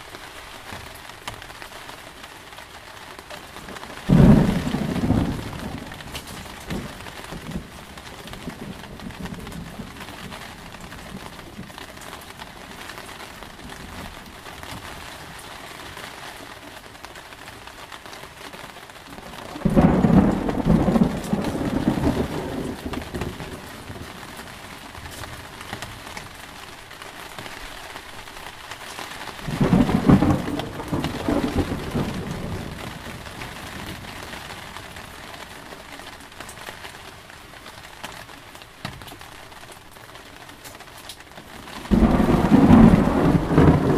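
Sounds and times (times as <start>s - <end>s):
steady rain falling: 0.0s - 43.9s
thunder rolling: 4.1s - 11.7s, 19.2s - 24.7s, 29.4s - 34.3s, 41.9s - 43.9s.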